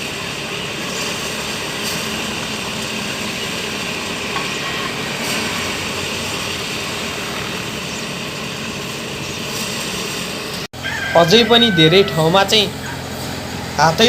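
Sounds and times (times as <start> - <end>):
rice thresher running: 0.0 - 14.0.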